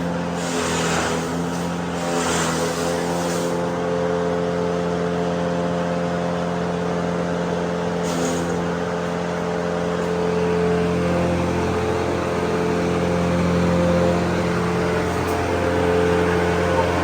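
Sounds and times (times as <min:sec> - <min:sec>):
machine motor running: 0:05.6 - 0:17.0.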